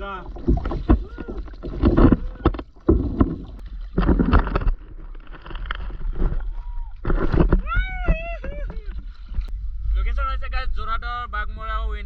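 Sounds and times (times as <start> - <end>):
steady low rumble: 6.4 - 12.0.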